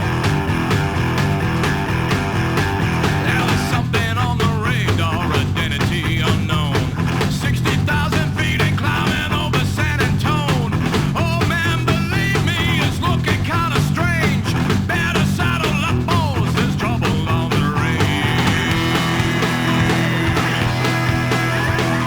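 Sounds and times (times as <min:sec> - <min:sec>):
electric guitar lead: 0:00.0 - 0:03.8, 0:17.1 - 0:22.0
bass: 0:00.0 - 0:22.0
drums: 0:00.0 - 0:22.0.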